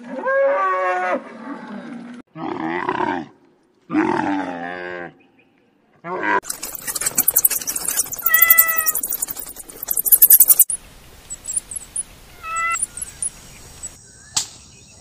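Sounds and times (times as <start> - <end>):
guinea pigs squeaking: 6.4 - 14.0.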